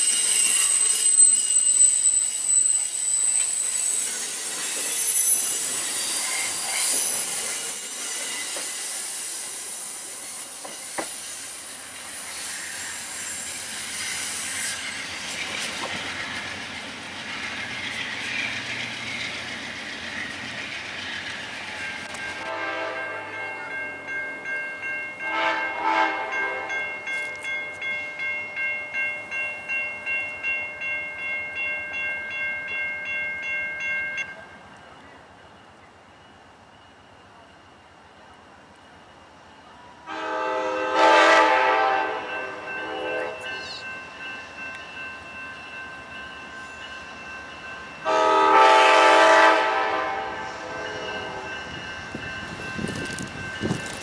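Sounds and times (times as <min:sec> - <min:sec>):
crossing bell ringing: 0:00.0 - 0:12.0, 0:21.4 - 0:54.0
train wheels hissing and rumbling: 0:00.0 - 0:23.8
train horn blast: 0:22.4 - 0:23.6, 0:25.2 - 0:26.8, 0:40.0 - 0:43.8, 0:48.0 - 0:51.6.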